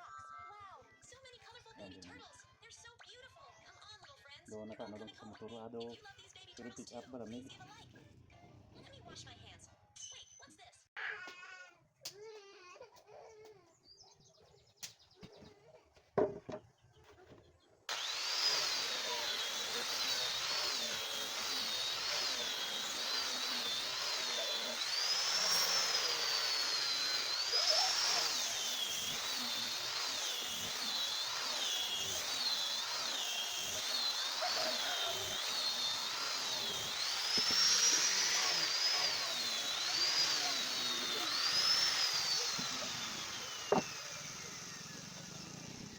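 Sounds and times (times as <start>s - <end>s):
power tool whining: 17.9s - 45.9s.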